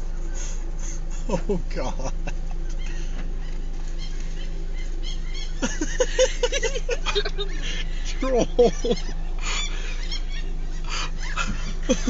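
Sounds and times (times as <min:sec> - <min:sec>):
car engine idling: 0:00.0 - 0:12.0
seagulls calling: 0:00.0 - 0:12.0.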